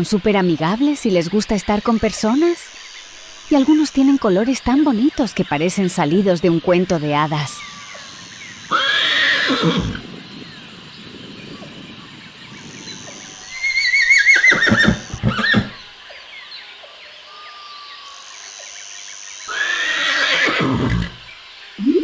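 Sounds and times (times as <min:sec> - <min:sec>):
pony whinnying: 0:08.7 - 0:10.1, 0:13.6 - 0:15.8, 0:19.5 - 0:21.3.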